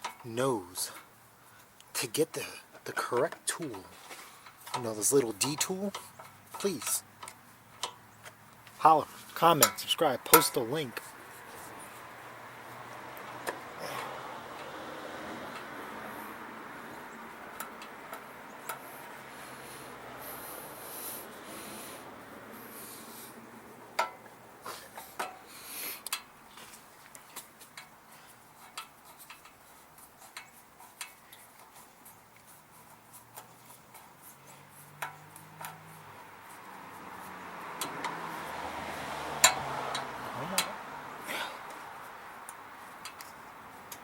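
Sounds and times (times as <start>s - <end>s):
light metallic clicks: 17.5s - 19.0s, 42.4s - 44.0s.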